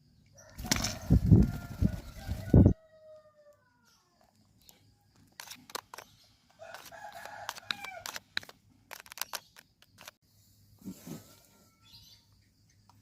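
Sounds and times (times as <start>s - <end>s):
rooster crowing: 0.4s - 3.9s.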